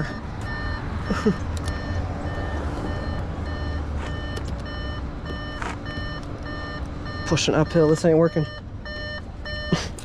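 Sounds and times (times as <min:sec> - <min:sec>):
truck backup alarm beeping: 0:00.0 - 0:10.0
truck engine running: 0:00.0 - 0:10.0.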